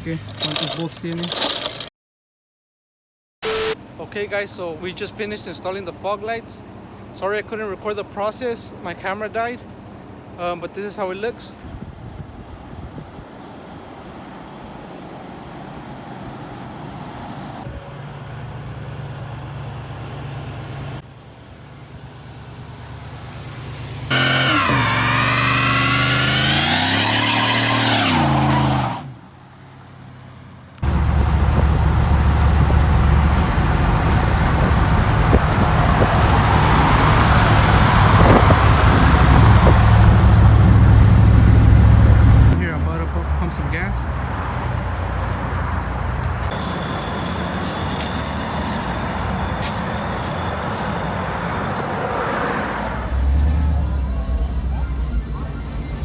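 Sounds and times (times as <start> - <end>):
road traffic noise: 0.0 - 1.9, 3.4 - 56.0
truck engine running: 15.8 - 56.0
rushing hiss: 46.5 - 51.9.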